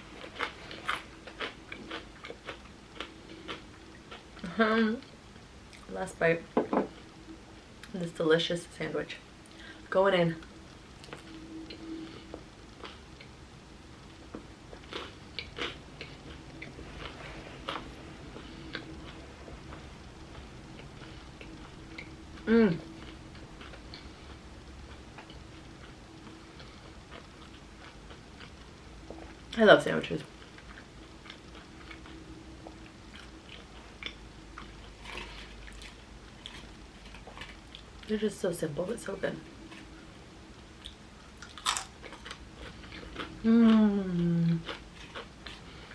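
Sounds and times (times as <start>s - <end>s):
mouth chewing crunchy food: 0.0s - 4.5s, 14.7s - 29.4s, 32.8s - 38.1s, 40.8s - 45.9s.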